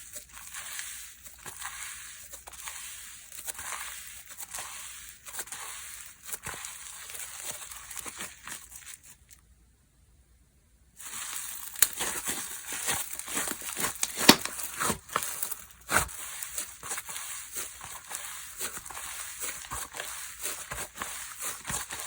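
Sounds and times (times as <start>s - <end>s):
slime squeezed by hand: 11.0s - 22.0s.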